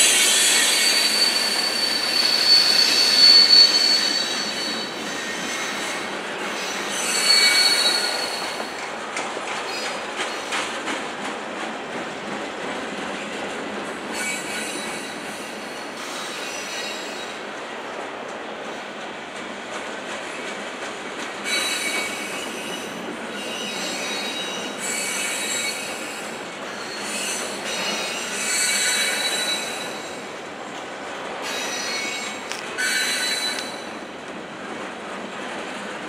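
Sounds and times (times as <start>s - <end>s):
train wheels squealing: 0.0s - 8.9s, 9.5s - 10.8s, 14.0s - 17.5s, 21.4s - 30.4s, 31.4s - 34.1s
rumble of train cars: 0.0s - 36.0s.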